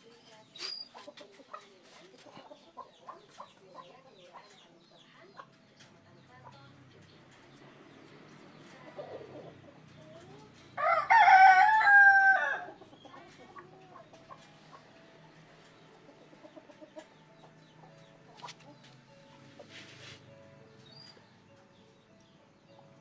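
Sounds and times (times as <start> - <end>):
rooster crowing: 10.8 - 12.7.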